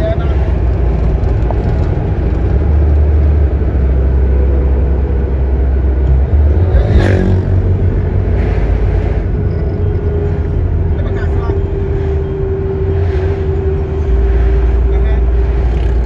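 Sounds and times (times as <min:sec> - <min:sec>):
traffic low rumble: 0:00.0 - 0:16.0
vehicle passing close: 0:00.0 - 0:16.0.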